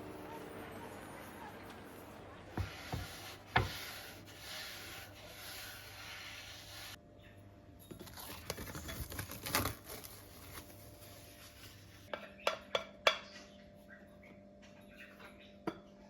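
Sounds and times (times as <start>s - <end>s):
kitchenware scraping and rustling: 7.8s - 12.2s.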